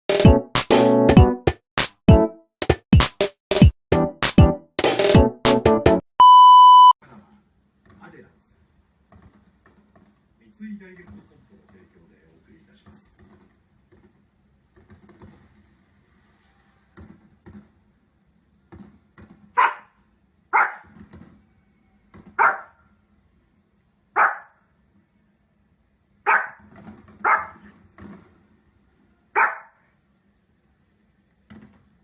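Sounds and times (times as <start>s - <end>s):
dog barking: 19.6s - 20.9s, 22.4s - 22.8s, 24.1s - 24.6s, 26.2s - 26.6s, 27.2s - 27.7s, 29.3s - 29.9s.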